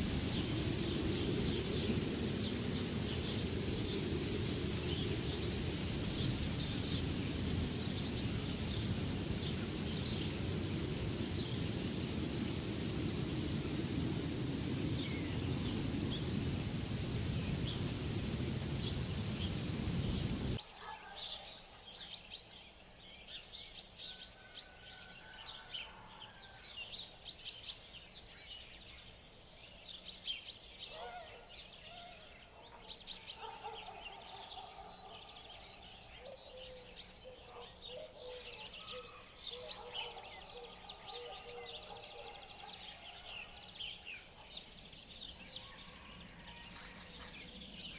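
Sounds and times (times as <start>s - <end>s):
steady rushing noise: 0.0s - 20.6s.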